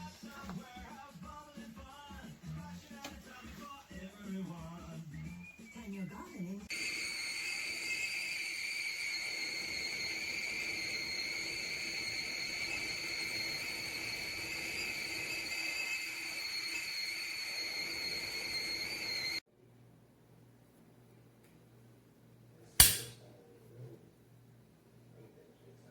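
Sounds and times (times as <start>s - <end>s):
kettle whistling: 6.7s - 19.4s.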